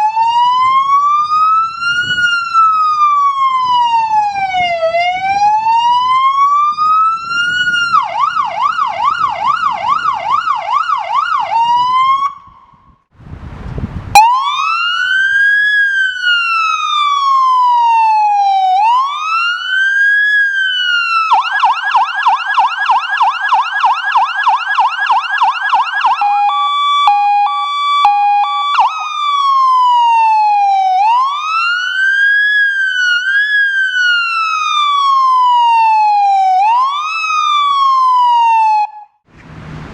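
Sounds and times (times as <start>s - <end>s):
electronic siren cycling tones: 14.1s - 39.2s.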